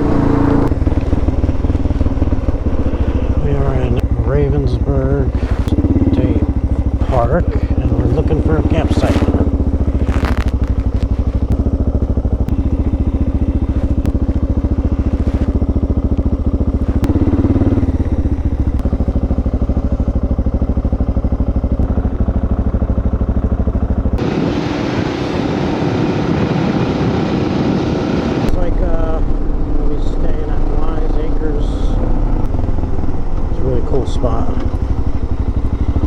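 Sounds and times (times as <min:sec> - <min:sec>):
motorcycle engine thumping: 0:00.0 - 0:24.3, 0:31.9 - 0:36.0.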